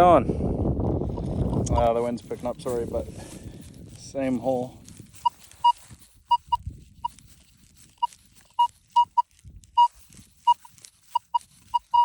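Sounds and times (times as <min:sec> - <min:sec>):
soil rustling: 0:00.9 - 0:12.0
metal detector beeping: 0:01.1 - 0:01.7, 0:05.2 - 0:12.0.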